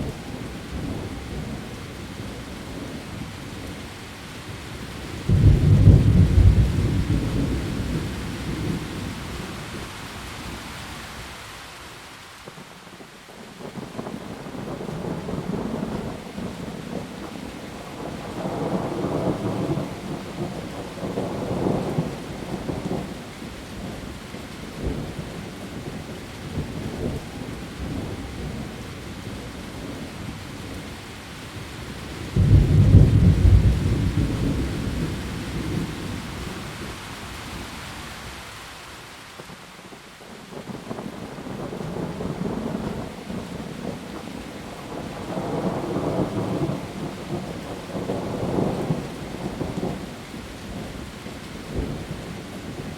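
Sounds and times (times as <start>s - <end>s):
heavy rain: 0.0s - 52.9s
thunder rolling: 5.3s - 9.0s, 32.4s - 36.6s.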